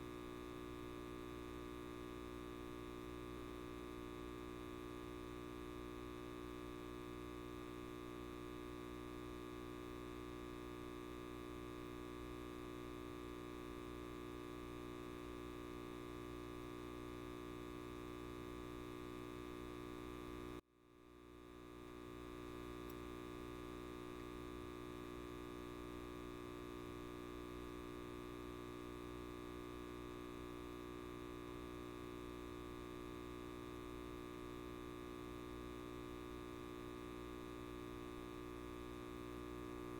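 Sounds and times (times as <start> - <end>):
light bulb electrical buzz: 21.2 - 39.9.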